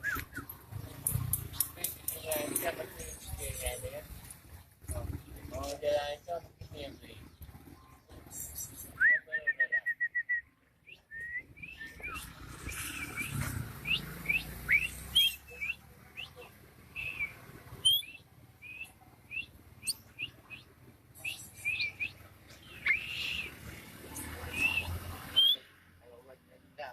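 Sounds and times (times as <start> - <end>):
songbird chirping: 4.9 - 25.8.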